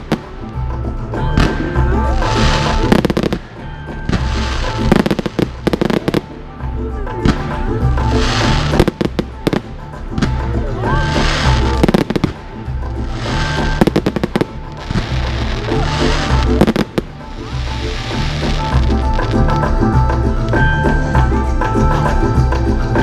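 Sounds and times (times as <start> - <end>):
fireworks bangs and crackles: 0.0 - 21.4
background music with steady beat: 0.0 - 23.0.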